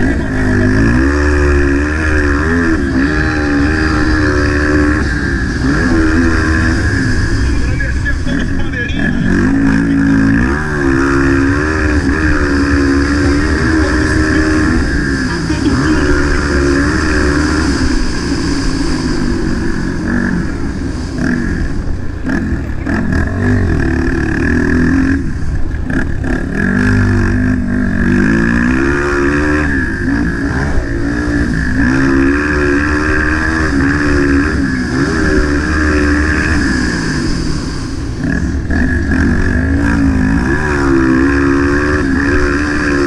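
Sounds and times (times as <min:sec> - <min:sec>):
dirt bike engine revving: 0:00.0 - 0:43.0
rushing wind hiss: 0:16.4 - 0:22.2, 0:29.6 - 0:38.8.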